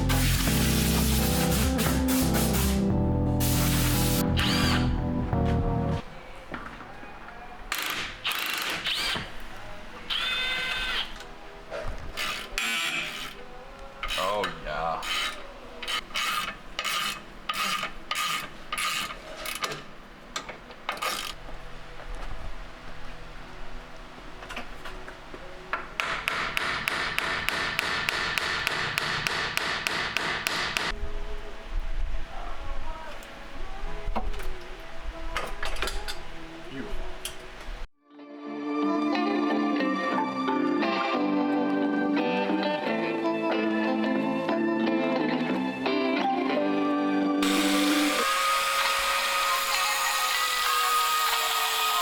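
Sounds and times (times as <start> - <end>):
metal-on-metal tool squeaking: 15.0 - 19.2.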